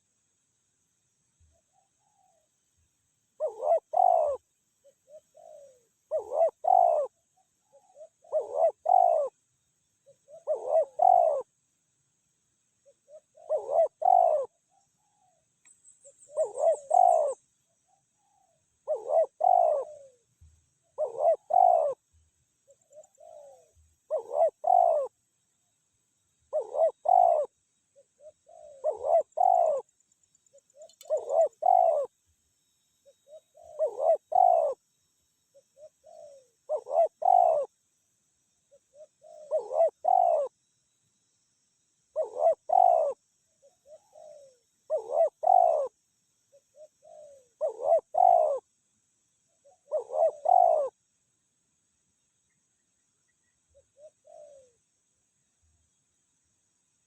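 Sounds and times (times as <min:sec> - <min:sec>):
dove cooing: 0:03.4 - 0:11.6, 0:12.8 - 0:20.3, 0:20.9 - 0:25.2, 0:26.5 - 0:29.9, 0:30.5 - 0:32.1, 0:33.0 - 0:34.8, 0:35.5 - 0:37.7, 0:38.7 - 0:40.6, 0:42.1 - 0:48.7, 0:49.6 - 0:51.0, 0:53.7 - 0:54.8.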